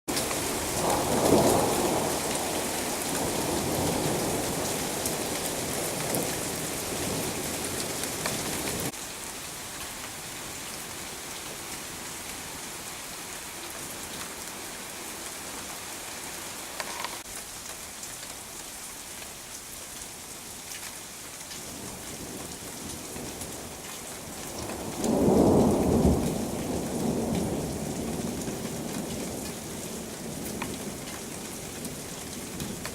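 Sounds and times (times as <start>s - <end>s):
rain splashing on hard surfaces: 0.1s - 32.9s.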